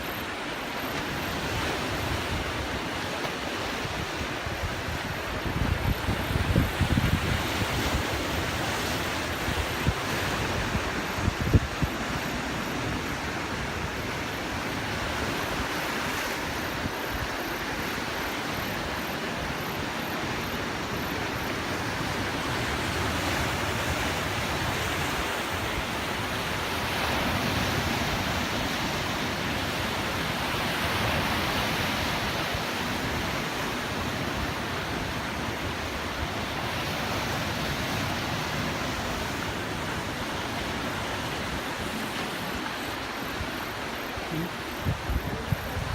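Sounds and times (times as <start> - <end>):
sea surf washing on shore: 0.0 - 45.9
wind buffeting microphone: 1.5 - 12.2, 44.3 - 45.9.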